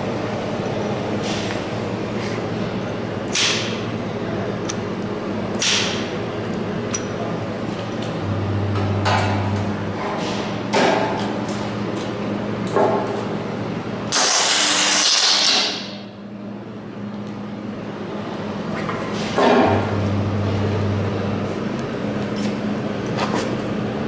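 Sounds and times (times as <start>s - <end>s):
steady low hum: 0.0s - 14.1s, 16.1s - 24.0s
stud welder sharp bursts: 14.1s - 15.6s.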